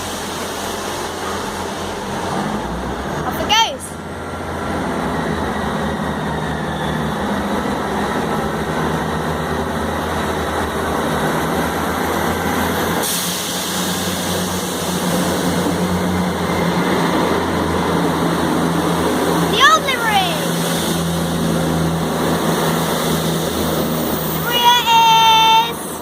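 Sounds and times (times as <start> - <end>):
hiss: 0.0 - 2.1, 12.9 - 16.0, 20.5 - 24.1
train diesel engines droning: 0.0 - 26.0.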